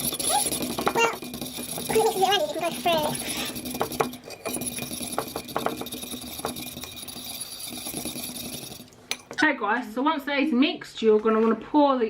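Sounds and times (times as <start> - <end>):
fork scraping and tapping bowl: 0.0 - 9.4.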